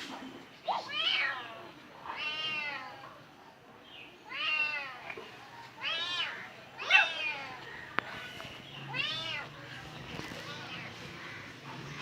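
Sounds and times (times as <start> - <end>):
cat meowing: 2.1 - 3.0, 5.8 - 7.6, 8.9 - 9.5.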